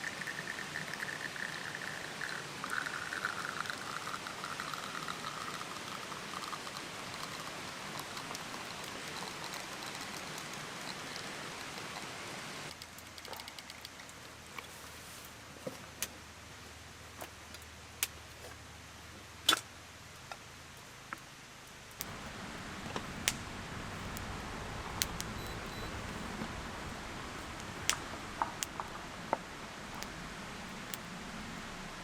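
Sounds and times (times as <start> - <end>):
sharp clicks and taps: 22.0 - 32.0
steady hiss: 22.0 - 32.0.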